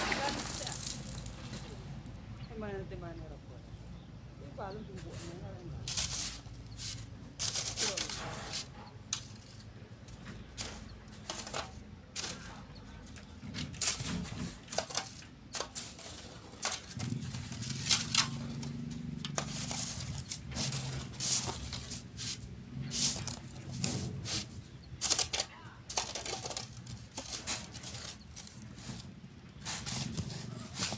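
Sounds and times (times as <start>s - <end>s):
sand rattling on screen: 5.1s - 9.7s, 10.4s - 12.7s, 13.6s - 30.9s
shovels scraping: 5.1s - 9.7s, 10.4s - 30.9s.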